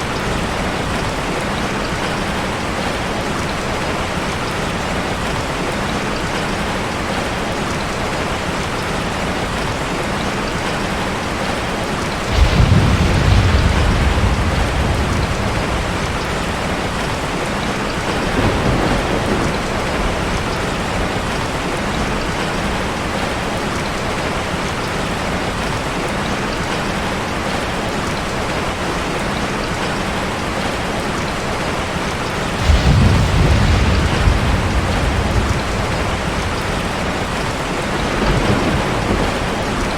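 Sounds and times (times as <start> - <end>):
waterfall rushing: 0.0 - 39.9
deep rumble: 12.3 - 20.6, 32.6 - 39.9.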